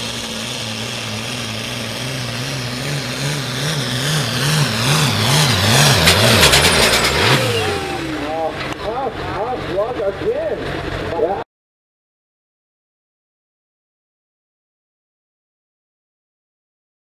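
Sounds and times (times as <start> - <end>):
tractor diesel engine under load: 0.0 - 11.4.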